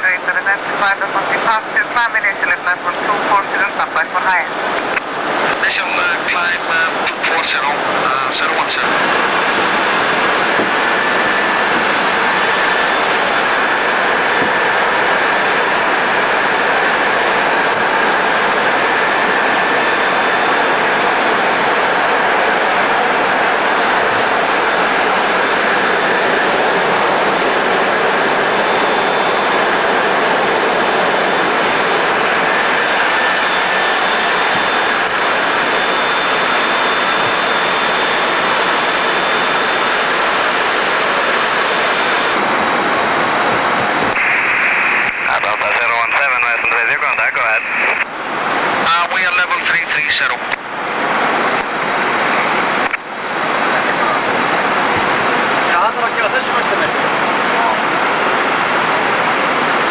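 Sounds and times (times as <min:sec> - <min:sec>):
jet engine and rushing air: 0:04.4 - 0:59.9
faint high whines: 0:05.6 - 0:42.5.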